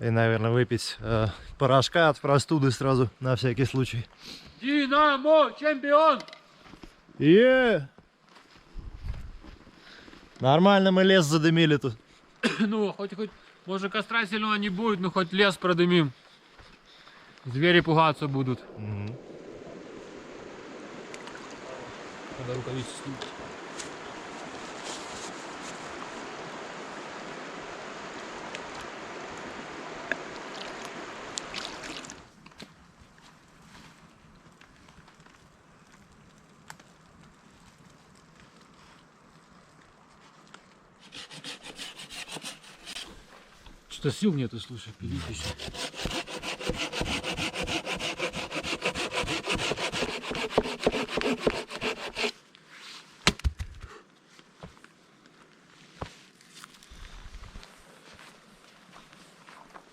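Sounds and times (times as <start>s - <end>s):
river rushing: 19.3s - 32.3s
hand saw sawing wood: 41.0s - 43.3s, 45.1s - 52.4s.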